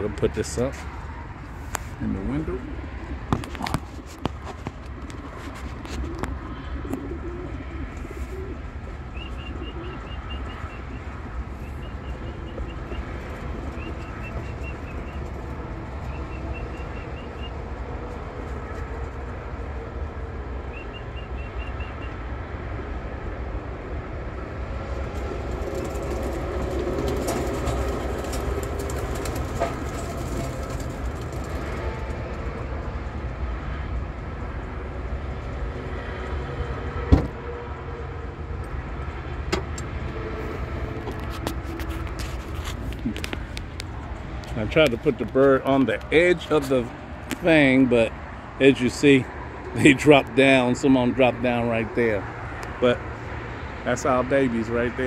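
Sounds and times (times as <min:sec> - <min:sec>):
pigeons cooing: 0:04.7 - 0:17.6
wings flapping and fluttering: 0:25.0 - 0:32.7.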